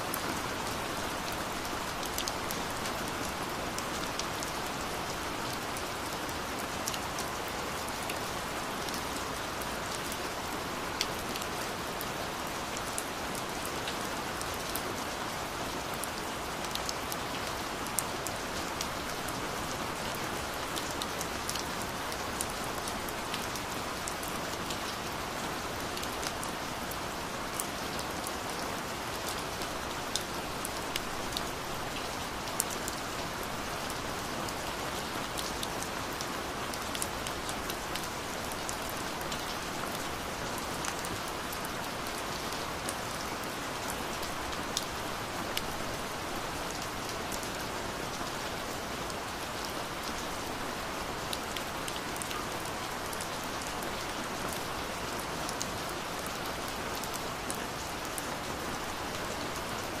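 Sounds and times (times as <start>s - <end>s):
gentle rain falling: 0.0s - 60.0s.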